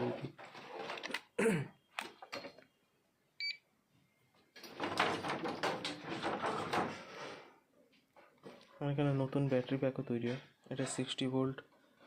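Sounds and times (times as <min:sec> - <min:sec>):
rustling and scraping: 0:00.0 - 0:01.3, 0:04.6 - 0:12.0.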